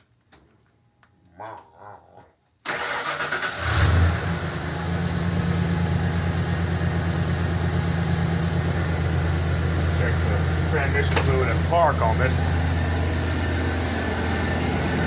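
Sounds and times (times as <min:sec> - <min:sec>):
engine starter cranking: 0:02.6 - 0:04.2
pickup engine revving and idling: 0:03.1 - 0:15.0.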